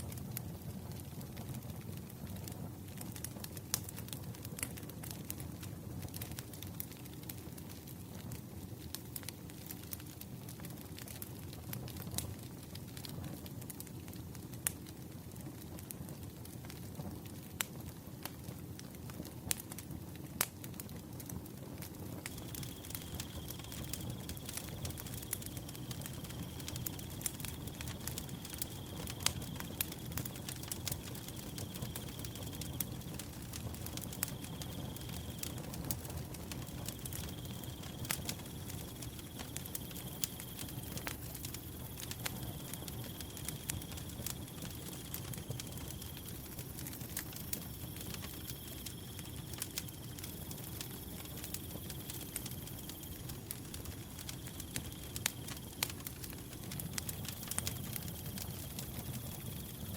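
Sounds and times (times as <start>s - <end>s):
wood fire crackling and popping: 0.0s - 59.9s
cricket trilling: 22.3s - 59.9s.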